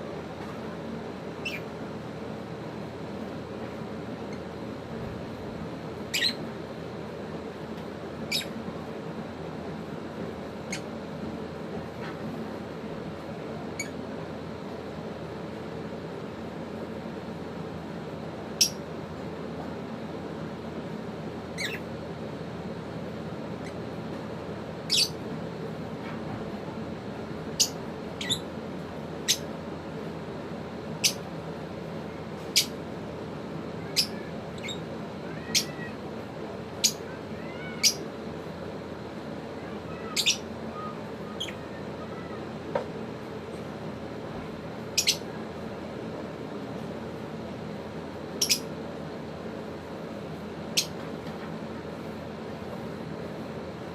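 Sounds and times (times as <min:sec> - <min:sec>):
steady background hum: 0:00.0 - 0:53.9
birds chirping: 0:01.4 - 0:01.7, 0:06.0 - 0:06.5, 0:08.2 - 0:08.6, 0:10.6 - 0:10.9, 0:13.7 - 0:14.1, 0:18.6 - 0:18.8, 0:21.5 - 0:21.9, 0:24.8 - 0:25.3, 0:27.5 - 0:28.5, 0:29.2 - 0:29.6, 0:31.0 - 0:31.3, 0:32.4 - 0:32.8, 0:33.8 - 0:36.1, 0:36.7 - 0:38.1, 0:39.7 - 0:42.5, 0:44.8 - 0:45.3, 0:48.3 - 0:48.8, 0:50.7 - 0:51.0.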